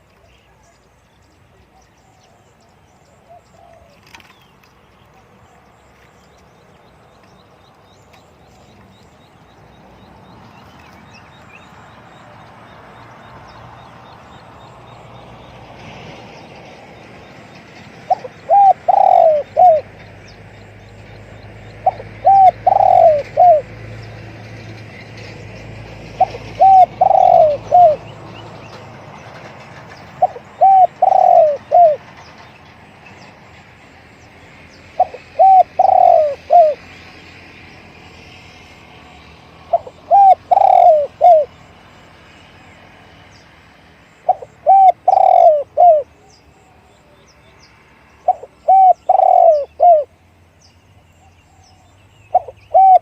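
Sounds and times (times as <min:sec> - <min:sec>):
dove cooing: 0:03.3 - 0:04.3, 0:18.1 - 0:19.9, 0:21.8 - 0:23.8, 0:26.2 - 0:28.1, 0:30.2 - 0:32.2, 0:35.0 - 0:36.8, 0:39.7 - 0:41.5, 0:44.3 - 0:46.8, 0:48.2 - 0:50.1, 0:52.3 - 0:53.0.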